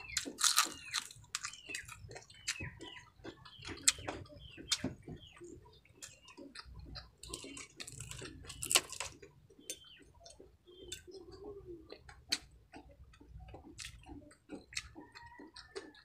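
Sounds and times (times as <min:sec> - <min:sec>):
crunching and chewing food: 0:00.0 - 0:16.0.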